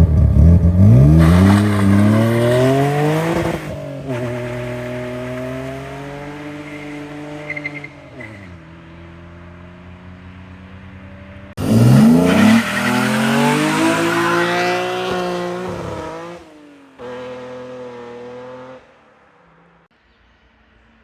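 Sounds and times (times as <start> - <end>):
car engine revving: 0.0 - 10.9, 11.5 - 19.0
tyre squeal: 6.6 - 8.5.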